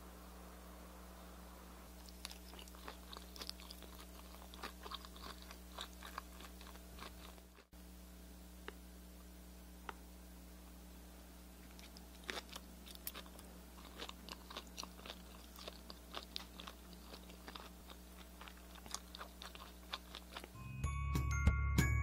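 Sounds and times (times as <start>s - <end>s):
person chewing crispy shrimp: 2.0s - 7.7s, 11.6s - 20.6s.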